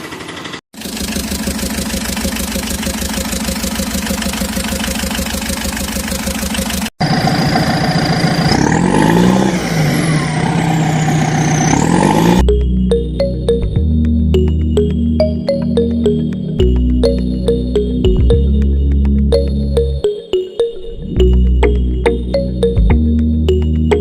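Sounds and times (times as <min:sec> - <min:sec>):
tractor engine running: 0:00.0 - 0:12.4
engine revving with high whine: 0:00.8 - 0:12.5.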